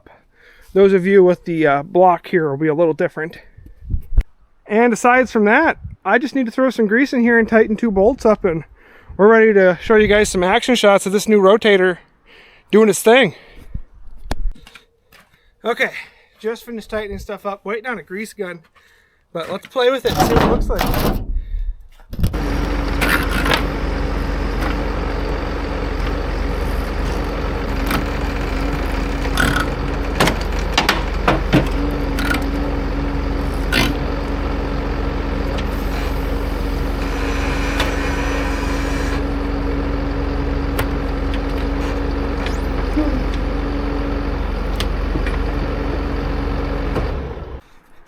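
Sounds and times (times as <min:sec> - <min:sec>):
sharp clunks and knocks: 0:20.1 - 0:21.4, 0:22.1 - 0:38.2, 0:40.6 - 0:47.4
harvester engine rumble: 0:22.3 - 0:47.7
hydraulic whine: 0:22.3 - 0:47.7.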